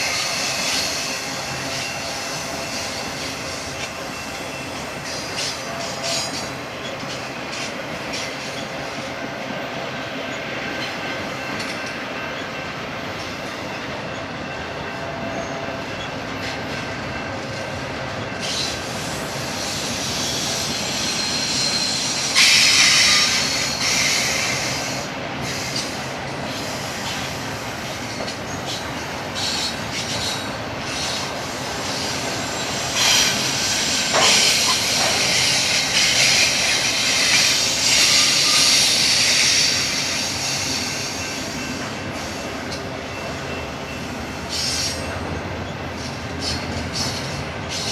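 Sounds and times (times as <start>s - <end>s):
freight train wheels on rails: 0.0s - 47.9s
high-pitched wheel squeal: 19.5s - 25.8s.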